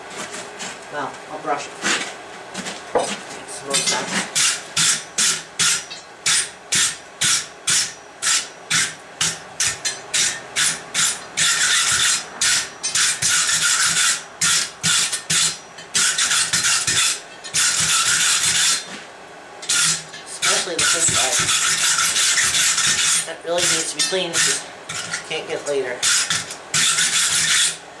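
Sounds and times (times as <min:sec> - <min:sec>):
wire brush scraping steel: 0:09.6 - 0:27.8.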